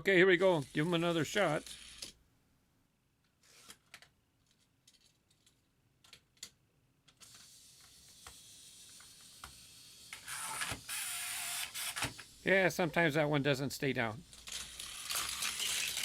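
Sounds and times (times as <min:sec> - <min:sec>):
toy car wheels rolling on track: 0:00.4 - 0:02.2, 0:03.4 - 0:04.1, 0:07.2 - 0:12.4, 0:14.2 - 0:16.0.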